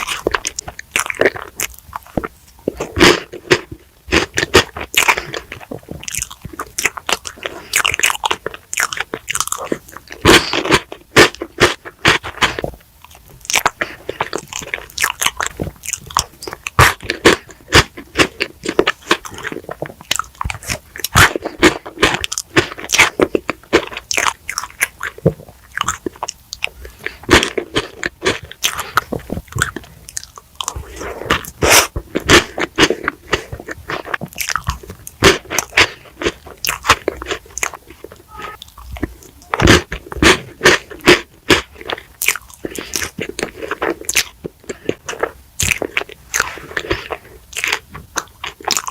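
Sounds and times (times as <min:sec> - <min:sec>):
crunchy bites and chewing: 0:00.0 - 0:48.9.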